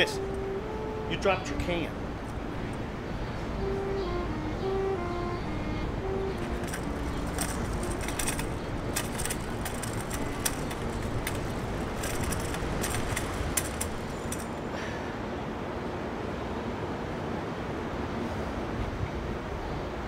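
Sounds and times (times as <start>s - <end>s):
low outdoor rumble: 5.5s - 15.5s.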